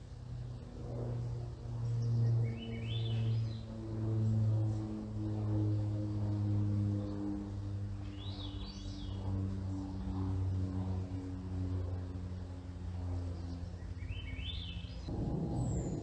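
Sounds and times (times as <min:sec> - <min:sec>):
airplane droning overhead: 0:00.0 - 0:16.0.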